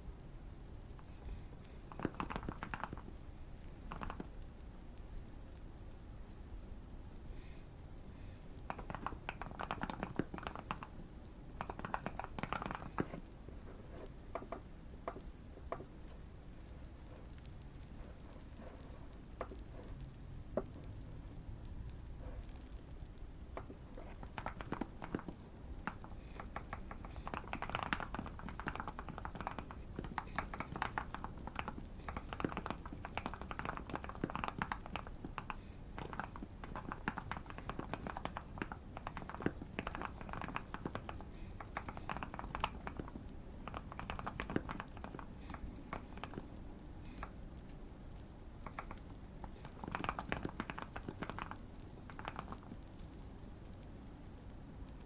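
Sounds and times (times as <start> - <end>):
fireplace crackle: 0.0 - 55.0
mechanical keyboard typing: 1.9 - 4.4, 8.6 - 13.3, 23.6 - 47.4, 48.7 - 53.8.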